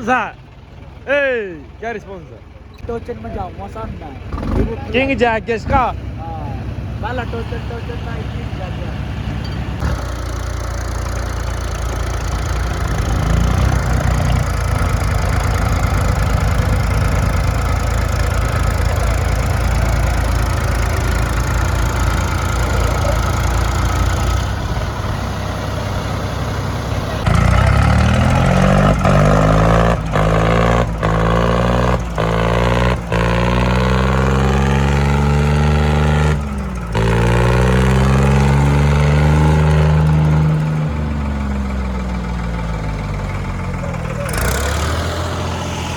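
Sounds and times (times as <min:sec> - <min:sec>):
tractor diesel engines under load: 0:00.0 - 0:45.9
engine at high revs: 0:04.2 - 0:45.9.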